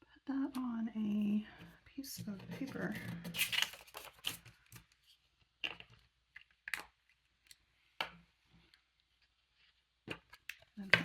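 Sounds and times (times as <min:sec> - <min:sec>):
paper rustling: 0:02.2 - 0:05.2
paper crinkles and taps: 0:02.2 - 0:08.2.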